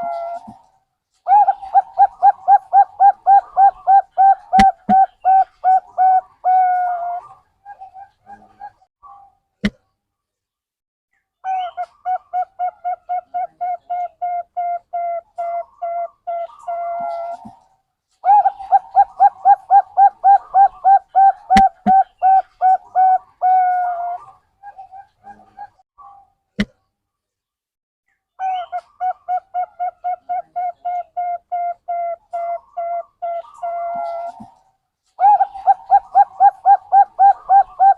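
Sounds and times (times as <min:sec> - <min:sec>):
dove cooing rapidly: 0:00.0 - 0:00.6, 0:01.3 - 0:08.8, 0:11.5 - 0:17.6, 0:18.2 - 0:25.8, 0:28.4 - 0:34.6, 0:35.2 - 0:37.9.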